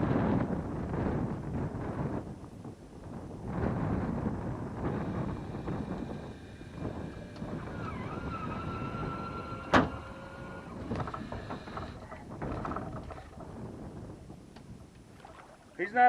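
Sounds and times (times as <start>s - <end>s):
wind noise: 0.0s - 16.0s
fishing reel drag whining: 4.7s - 13.4s.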